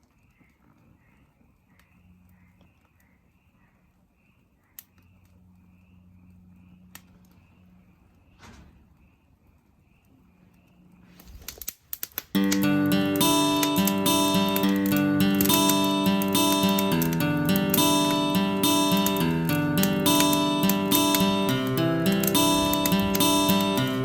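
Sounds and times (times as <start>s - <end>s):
clicks: 11.2s - 24.0s.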